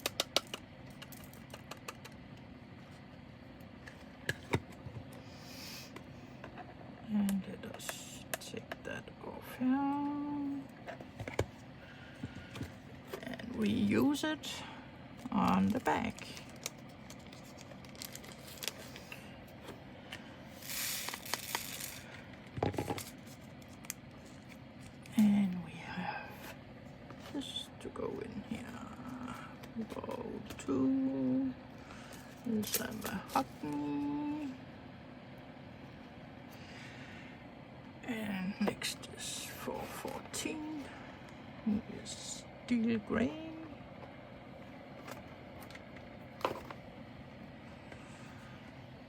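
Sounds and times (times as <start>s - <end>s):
faint steady hum: 0.0s - 49.0s
plastic bag crinkling: 15.5s - 19.1s, 20.6s - 22.0s.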